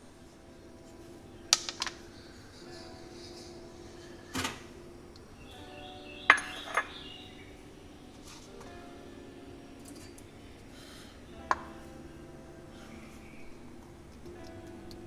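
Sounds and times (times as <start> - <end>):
soft background music: 0.0 - 15.0
kitchenware clinking: 1.5 - 7.4.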